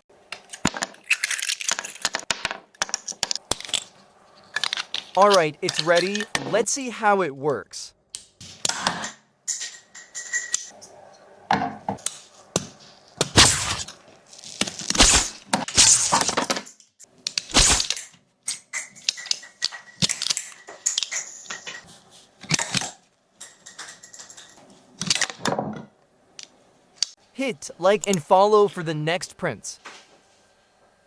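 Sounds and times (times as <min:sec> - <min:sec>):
sharp plastic clicks and cracks: 0:17.0 - 0:21.3.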